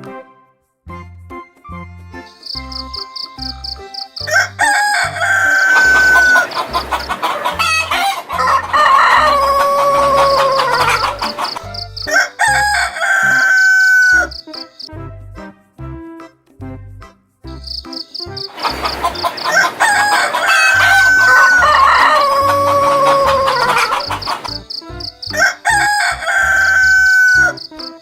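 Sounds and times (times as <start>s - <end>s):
background music with steady beat: 0.0s - 28.0s
rooster crowing: 4.2s - 14.4s, 18.5s - 24.6s, 25.3s - 27.7s.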